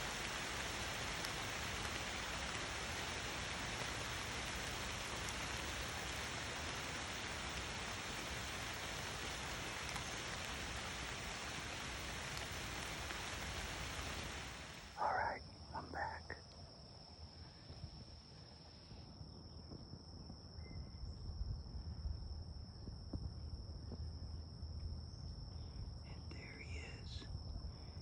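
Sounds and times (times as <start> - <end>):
rain hiss: 0.0 - 19.3, 25.3 - 28.0.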